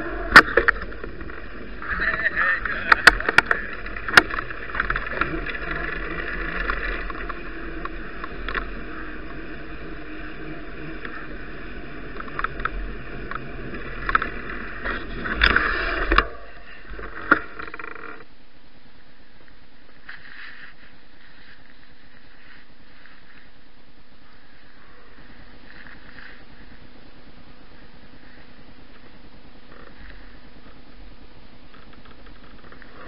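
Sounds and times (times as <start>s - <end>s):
bicycle rattling: 0.0s - 18.3s, 31.7s - 33.0s
bicycle clicks and knocks: 2.8s - 9.3s, 12.1s - 16.3s.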